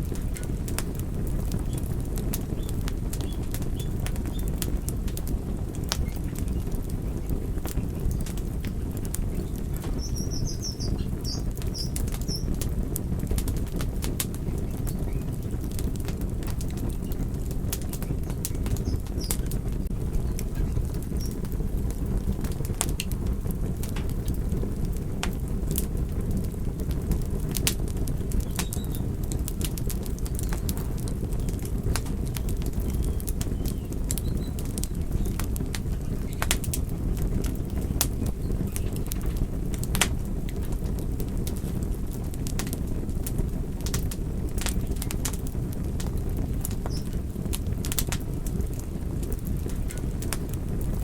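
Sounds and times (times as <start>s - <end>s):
fire pops and snaps: 0.0s - 51.0s
flames rumbling: 0.0s - 51.0s
wood fire crackling: 0.0s - 51.0s.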